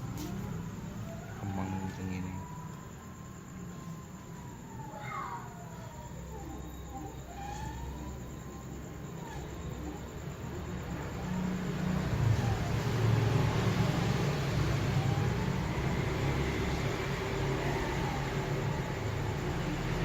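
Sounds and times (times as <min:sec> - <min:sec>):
stepper motors whining: 0:00.0 - 0:20.0.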